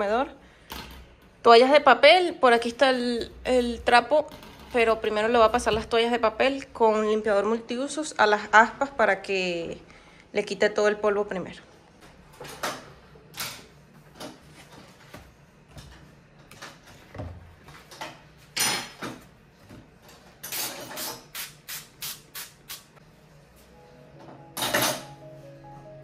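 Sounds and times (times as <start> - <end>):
spray bottle spritzing: 20.6 - 22.9.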